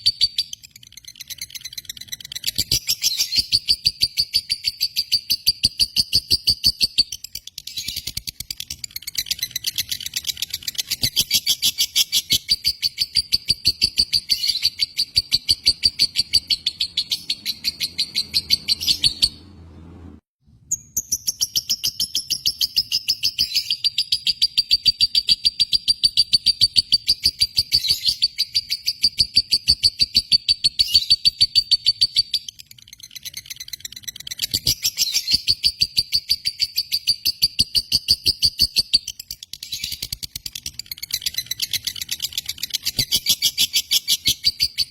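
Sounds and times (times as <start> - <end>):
lovebird chattering: 0.0 - 19.4, 21.4 - 44.9.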